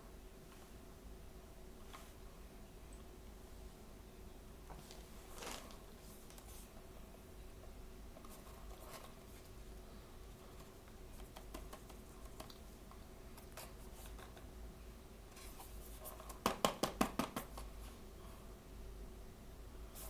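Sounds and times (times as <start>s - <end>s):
packaging rustling: 4.9s - 6.4s.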